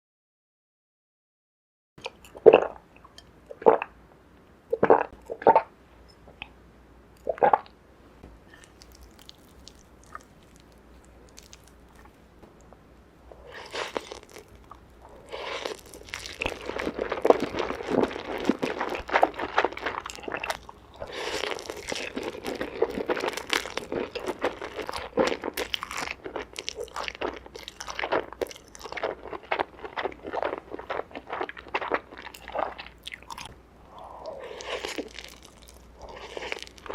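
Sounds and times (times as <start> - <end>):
crunchy chewing: 8.5 - 12.2, 13.4 - 36.9.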